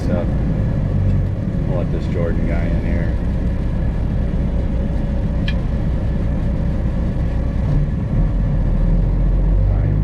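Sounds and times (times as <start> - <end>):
truck diesel engine rumbling: 0.0 - 10.0.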